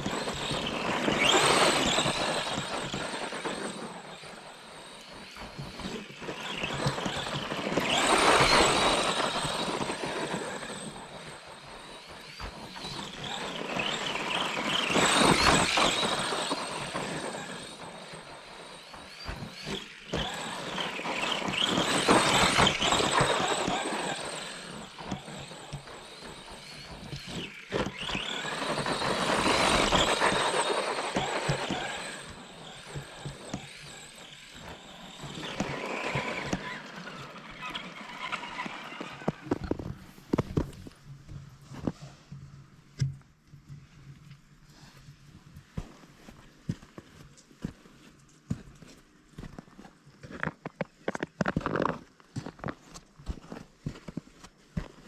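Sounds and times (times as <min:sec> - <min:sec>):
toy truck electric motor whining: 0:00.0 - 0:40.8.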